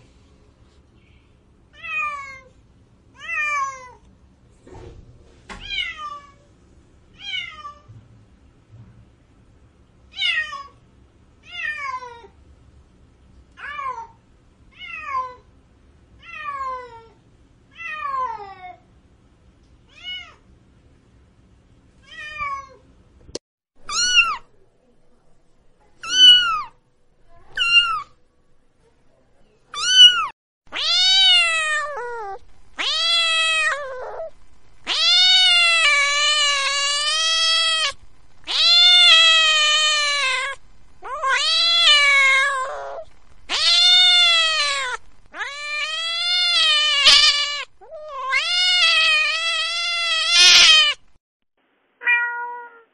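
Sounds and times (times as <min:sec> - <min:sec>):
cat yowls: 0:23.9 - 0:24.4, 0:26.0 - 0:26.8, 0:27.5 - 0:28.1, 0:29.8 - 0:51.0, 0:52.0 - 0:52.9
cats meowing: 0:26.0 - 0:26.8, 0:27.5 - 0:28.1, 0:29.8 - 0:51.0, 0:52.0 - 0:52.9.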